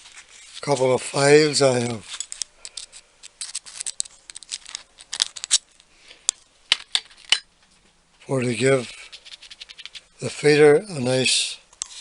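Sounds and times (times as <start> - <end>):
metal tools clicking and scraping: 2.0 - 5.7, 6.7 - 7.5.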